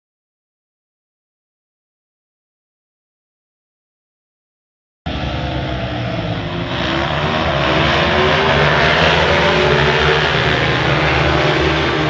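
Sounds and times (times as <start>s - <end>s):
motorcycle engines revving high: 5.1s - 12.0s.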